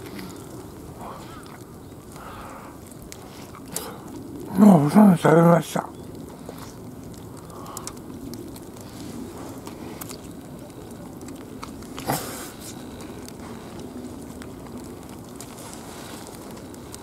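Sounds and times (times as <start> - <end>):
person chewing food: 6.4 - 10.5
loud rustle: 11.8 - 17.0.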